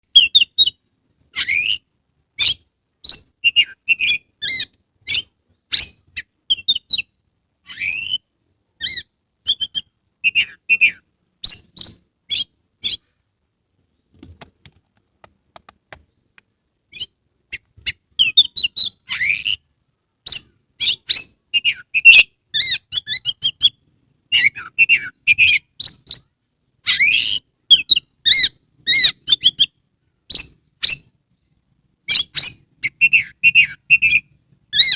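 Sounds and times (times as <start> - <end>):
bird singing whistled phrases: 2.4 - 7.1, 7.7 - 13.0, 20.3 - 26.2, 32.1 - 34.9.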